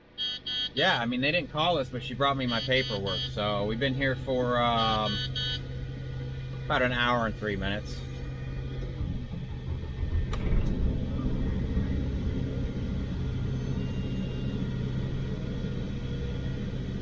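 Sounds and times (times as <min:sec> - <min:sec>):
truck diesel engine rumbling: 0:00.9 - 0:17.0.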